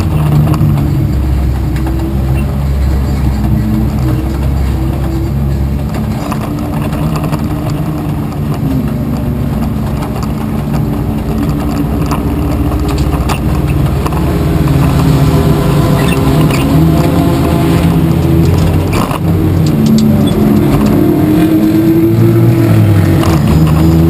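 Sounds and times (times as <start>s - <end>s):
race car engine revving: 0.0s - 24.0s.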